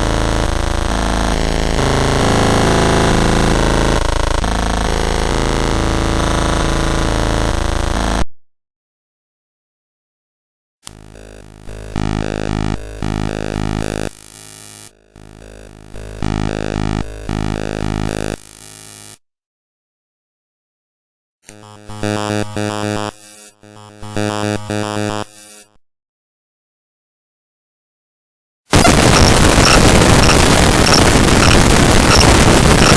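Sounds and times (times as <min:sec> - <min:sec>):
harsh buzzing digital tone: 0:00.0 - 0:08.2, 0:10.9 - 0:19.2, 0:21.5 - 0:25.8, 0:28.7 - 0:32.9.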